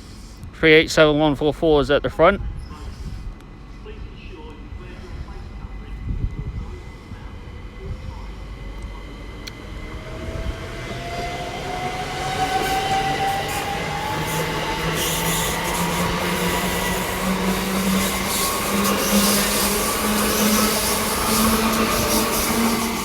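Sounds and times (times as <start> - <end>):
wheels rumbling on rails: 5.8 - 23.0
electric train motor whine: 7.8 - 23.0.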